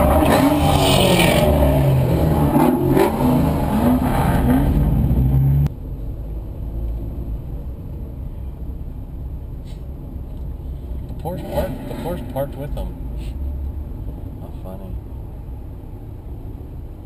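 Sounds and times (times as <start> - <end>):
car engines revving: 0.0 - 5.7, 10.6 - 15.2
road rumble: 0.0 - 17.0.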